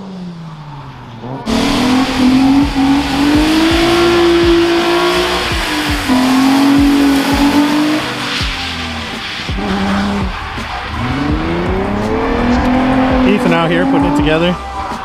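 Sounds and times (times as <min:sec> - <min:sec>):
car engine at high revs: 0:00.0 - 0:15.0
hiss of spinning tyres: 0:01.5 - 0:13.3.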